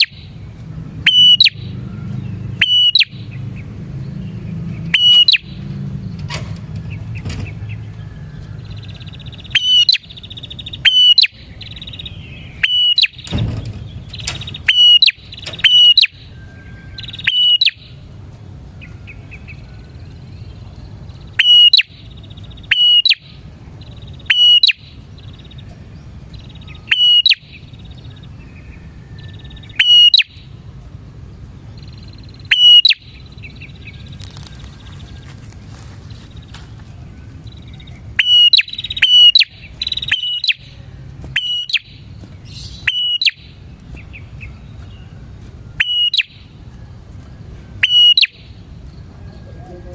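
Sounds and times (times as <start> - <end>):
sharp high bird calls: 0.0 - 3.7, 4.3 - 18.1, 18.8 - 30.7, 31.3 - 49.9
buzzy chattering bird trill: 1.0 - 1.7, 2.5 - 3.3, 4.8 - 5.6, 8.8 - 13.3, 14.0 - 18.0, 21.1 - 25.7, 31.8 - 35.2, 37.4 - 43.7, 45.7 - 46.6, 47.8 - 49.9.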